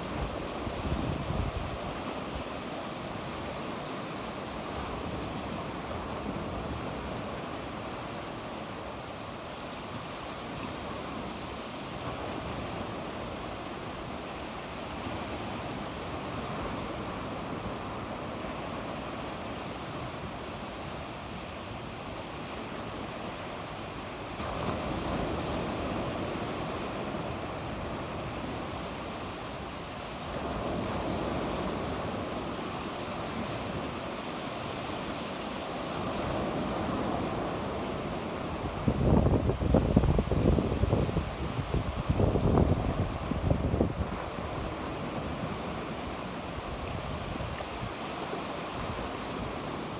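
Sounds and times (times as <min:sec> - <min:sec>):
wind on microphone: 0:00.0 - 0:02.4, 0:35.9 - 0:49.9
sea waves breaking on beach: 0:00.0 - 0:49.9.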